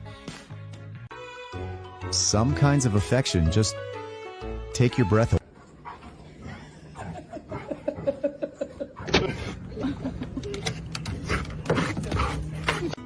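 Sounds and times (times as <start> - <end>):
person laughing: 6.9 - 10.9.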